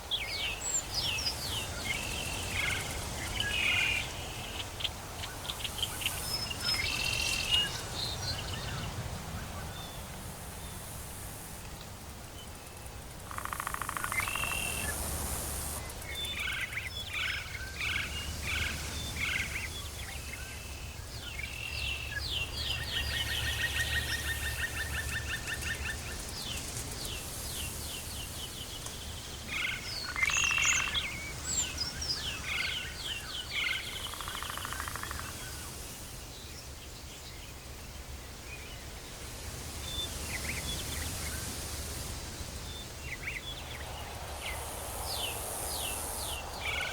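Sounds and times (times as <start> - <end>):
high hiss: 5.2 - 20.8, 39.0 - 46.9.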